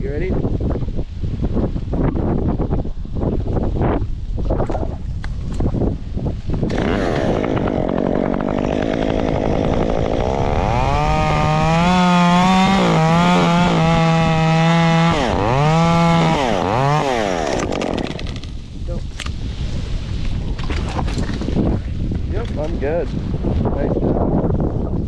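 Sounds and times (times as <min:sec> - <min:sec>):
wind on microphone: 0:00.0 - 0:25.0
chainsaw revving: 0:06.7 - 0:18.6.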